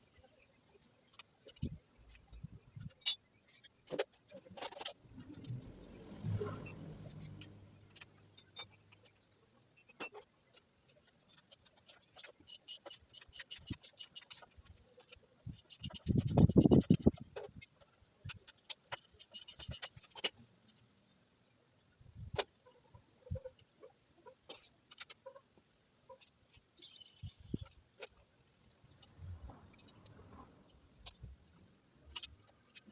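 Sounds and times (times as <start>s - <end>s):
rapid even clicking: 15.5s - 17.6s
metal tools clinking: 18.9s - 20.4s.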